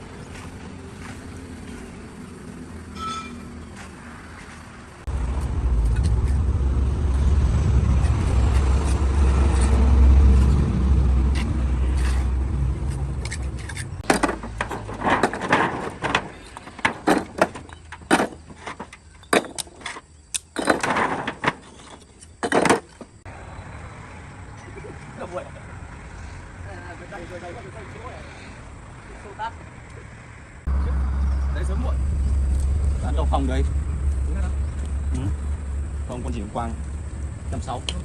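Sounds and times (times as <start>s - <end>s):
heavy low rumble: 5.0s - 14.1s, 30.7s - 38.0s.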